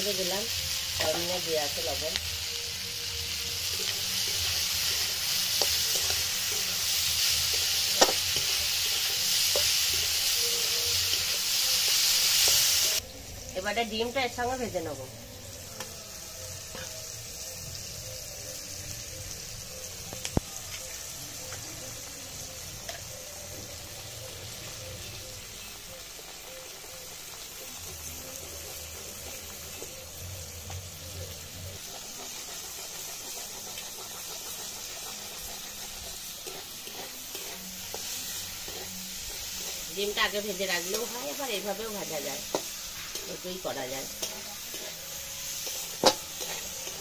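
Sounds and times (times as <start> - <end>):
food sizzling in hot oil: 0.0 - 47.0
metal spatula stirring: 3.7 - 12.7, 31.8 - 41.1, 42.0 - 47.0.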